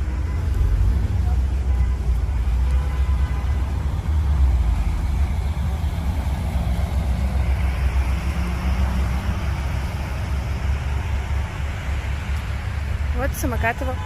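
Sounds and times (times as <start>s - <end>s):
traffic engine and road rumble: 0.0s - 14.0s.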